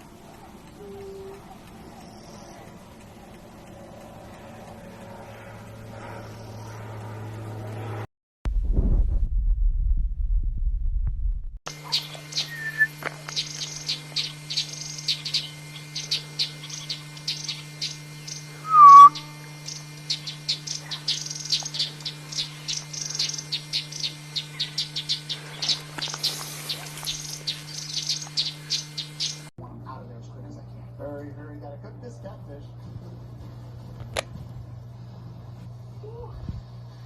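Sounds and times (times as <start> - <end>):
steady low hum: 0.0 - 37.0
bird chirping: 0.6 - 3.0, 11.7 - 29.5
whistled bird call: 11.8 - 25.3.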